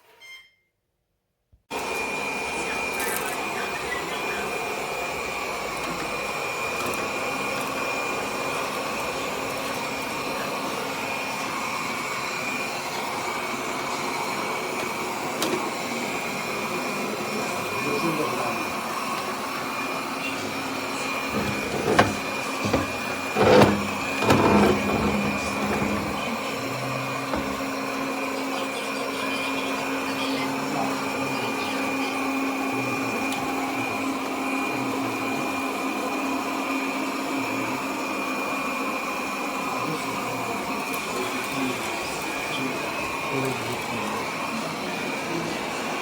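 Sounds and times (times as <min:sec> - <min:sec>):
robot vacuum motor whine: 0:17.2 - 0:28.6
knocks and rustles: 0:21.3 - 0:26.2.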